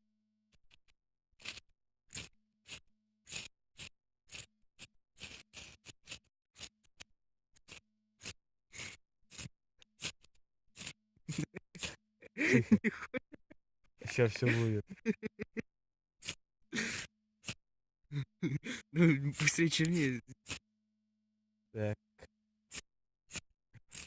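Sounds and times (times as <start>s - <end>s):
fire-starting rod rasping scrapes: 1.4s - 6.8s, 7.6s - 12.6s, 16.2s - 17.6s, 22.7s - 24.0s.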